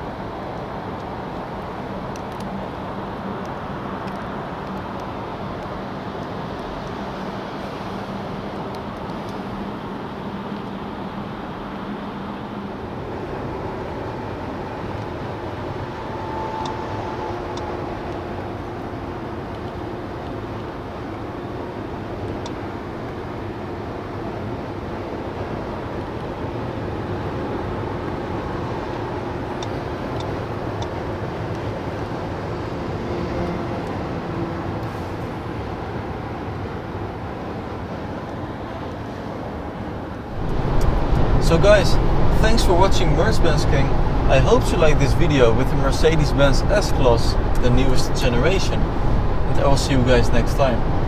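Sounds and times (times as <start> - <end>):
road and wind rush: 0.0 - 51.0
faint low drone: 13.6 - 19.2.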